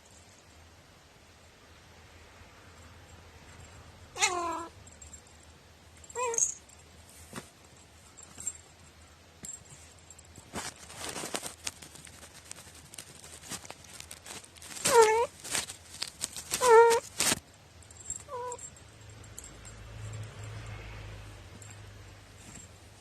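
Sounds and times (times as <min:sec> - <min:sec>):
rustling: 0:02.7 - 0:23.0
cat meowing: 0:04.1 - 0:04.7, 0:06.2 - 0:06.5, 0:14.9 - 0:15.3, 0:16.6 - 0:17.0, 0:18.3 - 0:18.6.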